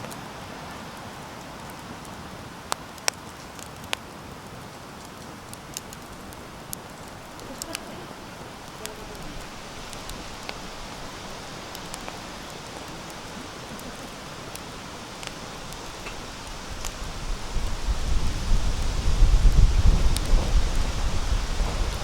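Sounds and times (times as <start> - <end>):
campfire crackling and hissing: 0.0 - 22.0
low rumble: 16.2 - 22.0.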